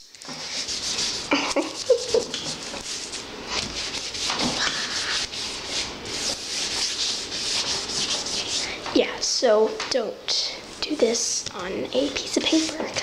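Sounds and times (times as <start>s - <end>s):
hands rubbing: 0.3s - 8.8s.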